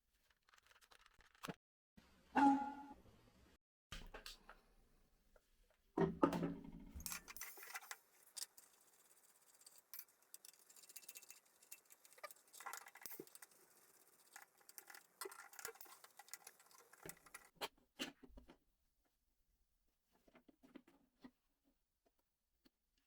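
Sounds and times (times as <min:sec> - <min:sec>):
small parts clicking and scraping: 0:07.0 - 0:17.6.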